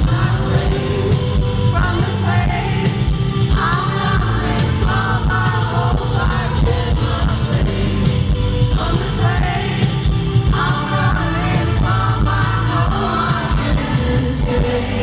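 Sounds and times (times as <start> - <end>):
man singing: 0.0 - 15.0
pop band with heavy bass: 0.0 - 15.0.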